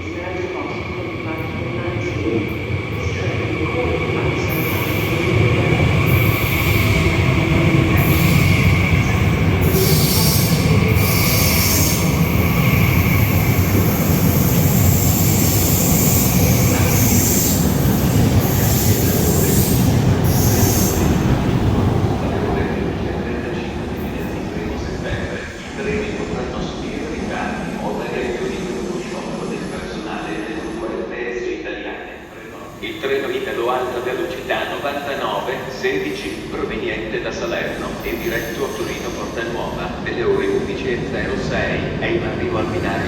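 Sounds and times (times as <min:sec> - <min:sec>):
train rumble: 0:01.4 - 0:31.1
train wheels squealing: 0:04.4 - 0:21.3, 0:32.2 - 0:36.4, 0:37.3 - 0:40.6.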